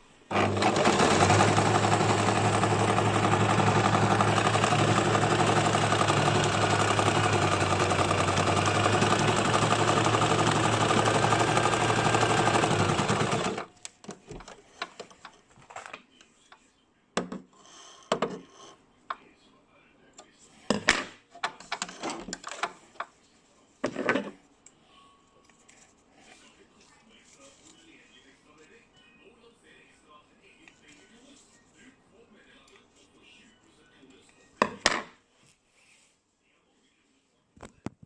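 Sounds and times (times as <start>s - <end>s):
electric sewing machine stitching: 0.3s - 13.7s.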